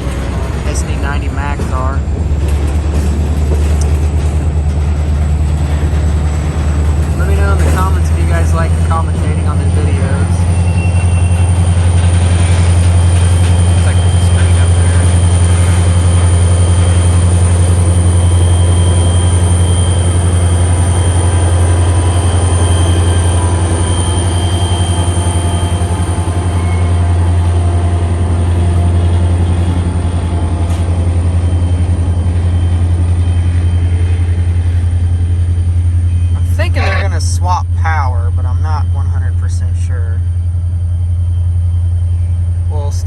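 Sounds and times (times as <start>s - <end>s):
freight train rumbling past: 0.0s - 43.0s
faint wheel squeal: 6.6s - 27.4s.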